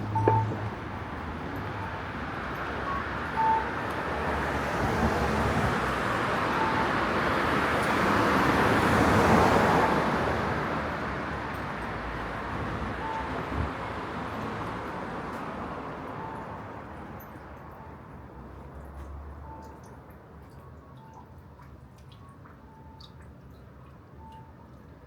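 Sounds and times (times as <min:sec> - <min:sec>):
road vehicle passing: 0:00.0 - 0:16.1.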